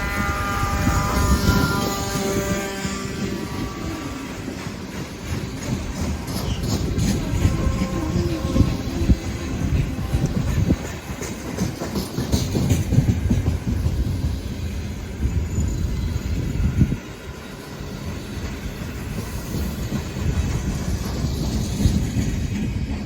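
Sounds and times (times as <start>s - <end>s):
train wheels clicking over rail joints: 0.1s - 23.0s
freight wagons rumbling: 0.4s - 15.7s.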